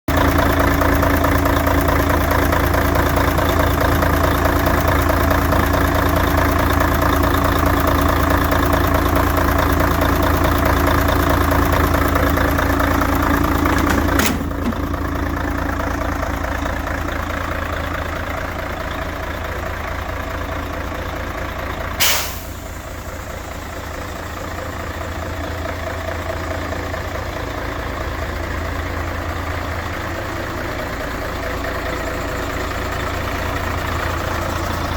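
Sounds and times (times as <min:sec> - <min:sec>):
diesel engine idling: 0:00.1 - 0:34.9
air brakes hissing: 0:22.0 - 0:23.0.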